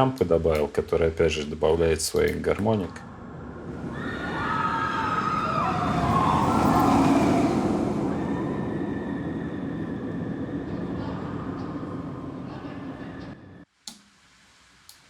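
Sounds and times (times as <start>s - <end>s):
ride cars rushing past: 3.0s - 13.6s
whining tones sliding down: 3.4s - 13.6s.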